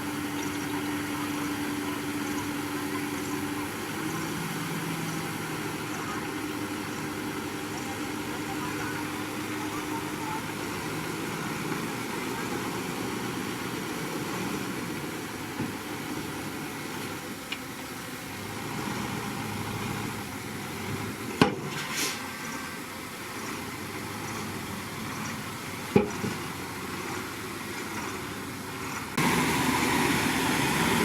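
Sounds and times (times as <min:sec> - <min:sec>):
diesel engine running: 0:00.0 - 0:31.0
brief hissing rush: 0:21.7 - 0:22.4.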